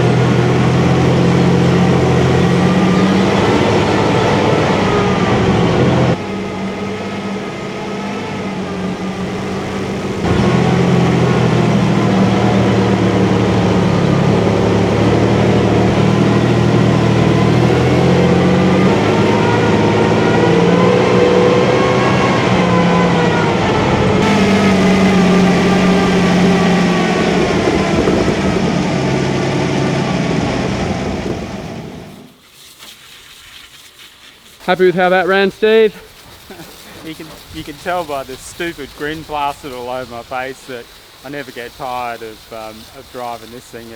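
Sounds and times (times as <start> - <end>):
tank engine running: 0.0 - 32.4, 34.6 - 43.9.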